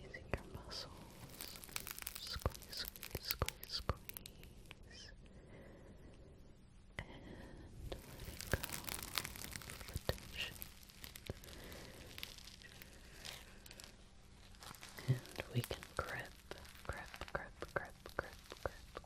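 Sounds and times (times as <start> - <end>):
soft rustle: 0.0 - 5.2, 7.1 - 19.0
sharp clicks and crackles: 0.7 - 4.8, 7.9 - 19.0.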